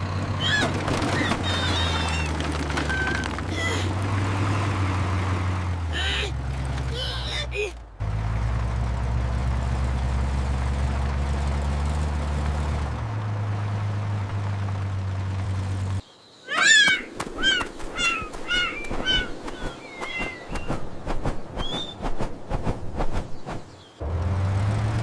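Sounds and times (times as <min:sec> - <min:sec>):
bird-like chirps: 0:16.0 - 0:22.5.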